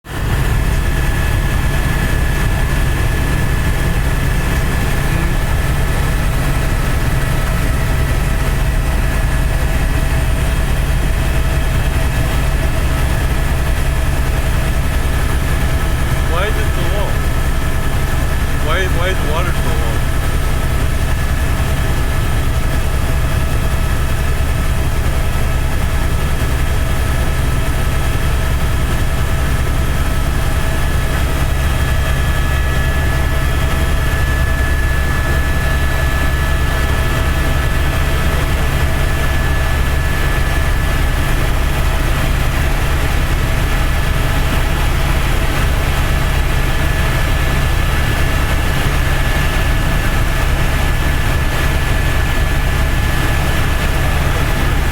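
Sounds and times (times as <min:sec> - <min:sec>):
helicopter engine and rotor drone: 0:00.0 - 0:54.9
high whine: 0:00.4 - 0:10.5.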